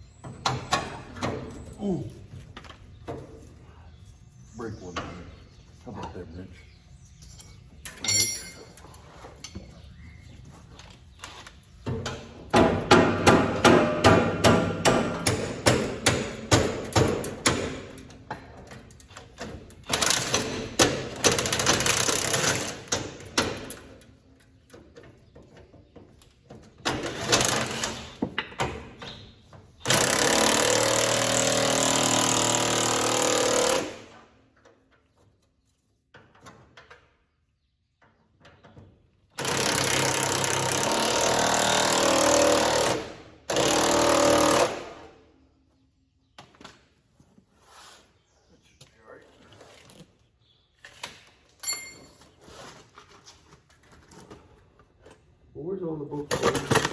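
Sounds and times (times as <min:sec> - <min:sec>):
power tool rattling: 0:19.8 - 0:23.7, 0:26.9 - 0:28.2, 0:29.8 - 0:34.1, 0:39.4 - 0:45.0.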